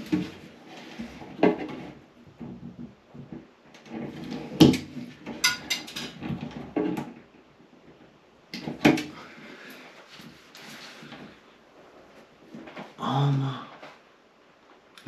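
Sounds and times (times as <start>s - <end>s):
hands knocking and scraping parts: 0.0s - 7.3s.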